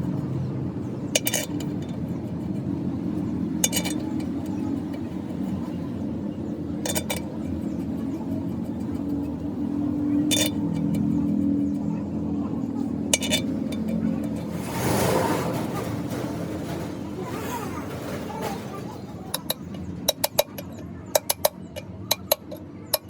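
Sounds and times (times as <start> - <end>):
sharp metallic clinks: 1.0 - 14.5.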